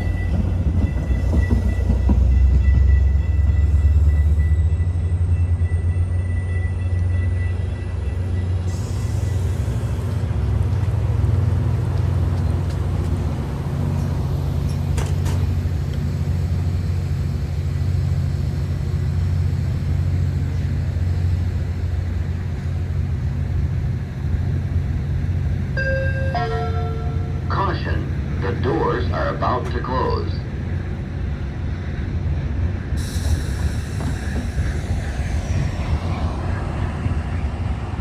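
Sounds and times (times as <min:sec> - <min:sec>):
diesel locomotive idling: 0:00.0 - 0:38.0.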